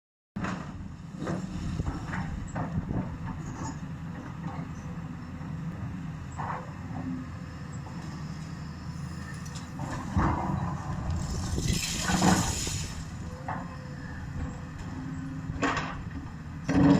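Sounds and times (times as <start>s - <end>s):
heavy machinery engine running: 0.4s - 16.9s
debris knocking: 11.2s - 13.2s.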